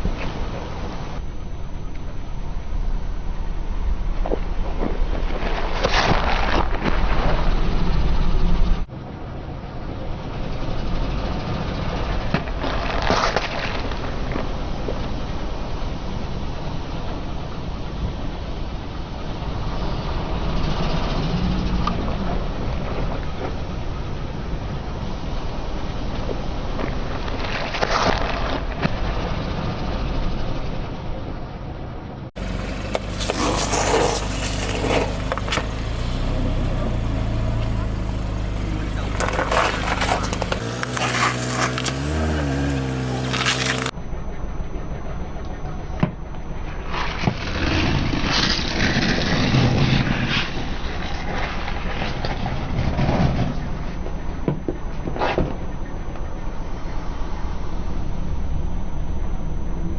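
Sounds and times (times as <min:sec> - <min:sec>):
car tyres rolling low rumble: 0:00.0 - 0:59.9
objects cracking under wheels: 0:32.4 - 0:43.9
crunching under wheels: 0:32.4 - 0:44.0
car engine humming: 0:32.4 - 0:50.0.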